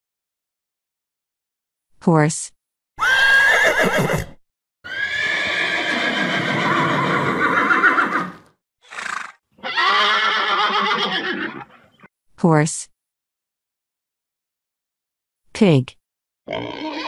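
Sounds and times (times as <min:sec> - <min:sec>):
horse whinnying: 0:03.0 - 0:12.1, 0:16.5 - 0:17.0.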